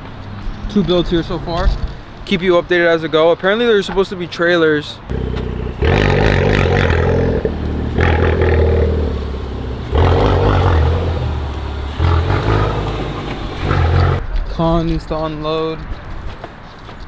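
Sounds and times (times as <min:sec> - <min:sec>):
car engine revving: 0:05.1 - 0:14.2.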